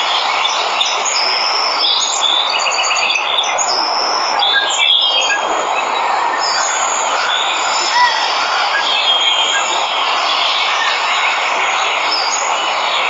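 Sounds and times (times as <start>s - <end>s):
birds chirping and whistling: 0.4s - 12.5s
waterfall rushing: 3.6s - 13.0s.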